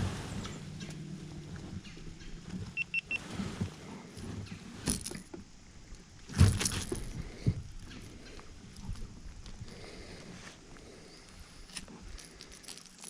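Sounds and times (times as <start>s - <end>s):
short high beeps: 2.8s - 3.2s.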